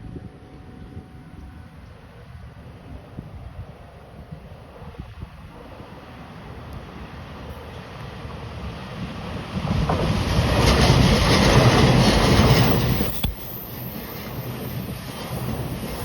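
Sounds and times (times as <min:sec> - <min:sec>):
electric train passing at speed: 0:00.0 - 0:16.0.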